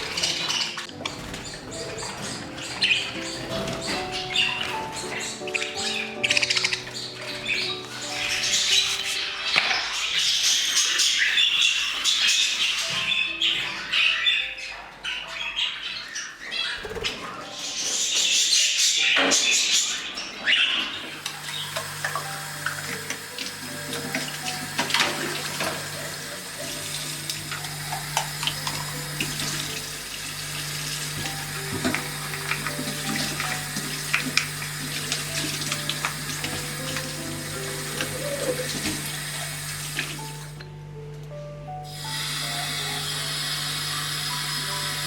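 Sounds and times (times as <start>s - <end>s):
tap water running into sink: 21.1s - 40.6s, 41.9s - 45.0s.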